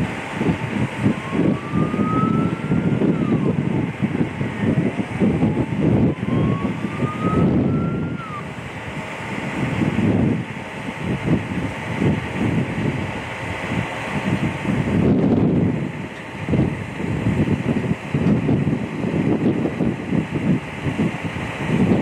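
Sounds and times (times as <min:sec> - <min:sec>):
distant siren wailing: 0:00.0 - 0:11.2.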